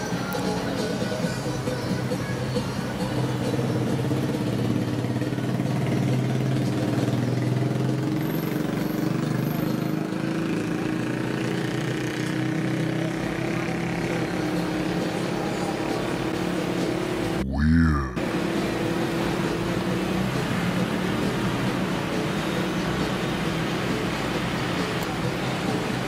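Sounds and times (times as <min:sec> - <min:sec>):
street noise: 0:00.0 - 0:26.0
vehicle engine running: 0:02.8 - 0:26.0.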